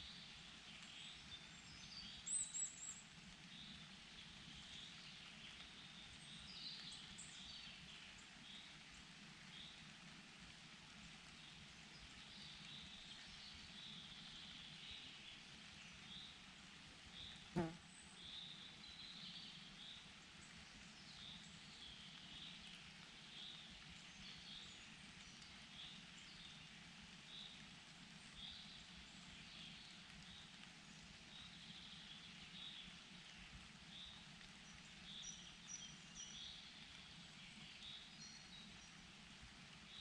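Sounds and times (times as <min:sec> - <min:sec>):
small birds chirping: 0:27.3 - 0:39.0.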